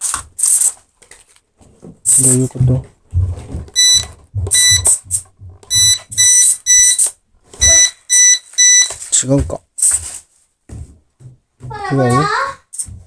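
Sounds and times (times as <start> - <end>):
short high-pitched electronic beeps: 3.8 - 5.0, 5.7 - 8.9.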